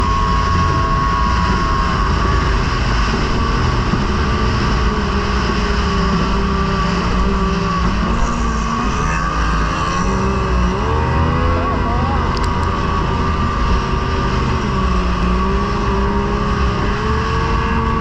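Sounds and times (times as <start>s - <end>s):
outboard engine running: 0.0s - 18.0s
rush of wind and water: 0.0s - 18.0s.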